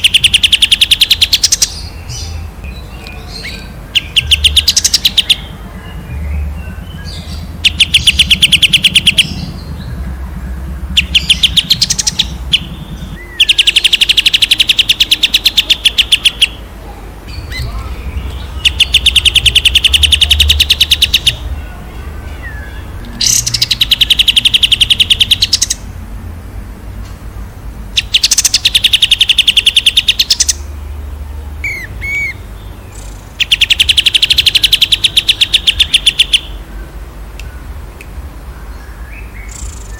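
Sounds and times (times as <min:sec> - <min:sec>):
songbird trilling: 0:00.0 - 0:25.9, 0:27.9 - 0:31.0, 0:31.6 - 0:39.9
low rumble: 0:03.6 - 0:13.4, 0:17.0 - 0:24.0.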